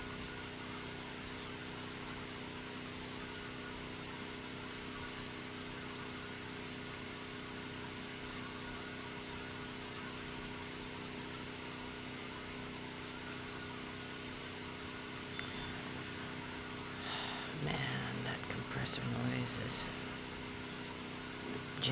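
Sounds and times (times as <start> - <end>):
machinery droning: 15.2 - 21.9.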